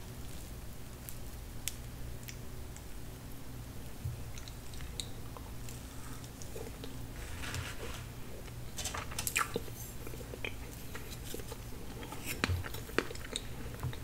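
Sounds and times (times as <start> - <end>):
person chewing with wet mouth sounds: 3.8 - 7.0, 9.3 - 14.0.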